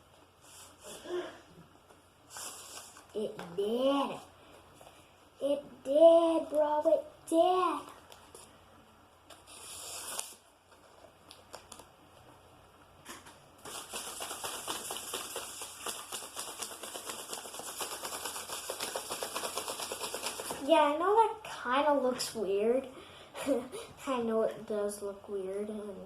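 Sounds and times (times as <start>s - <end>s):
paper rustling: 13.6s - 20.6s.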